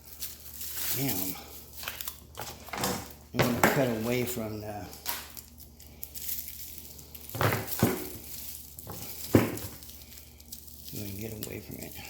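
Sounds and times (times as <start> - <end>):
packaging rustling: 0.0 - 12.0
handling knocks: 2.4 - 4.2, 7.4 - 9.8.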